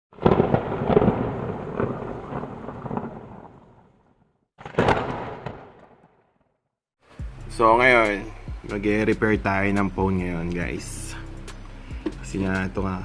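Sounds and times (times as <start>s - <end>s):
thunder-like rumbling boom: 0.2s - 6.2s.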